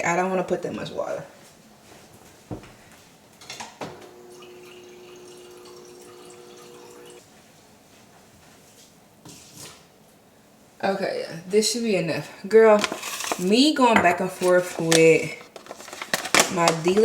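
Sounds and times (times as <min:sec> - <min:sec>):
dispenser hum: 0:03.9 - 0:07.2
water pouring into cup: 0:04.2 - 0:07.2.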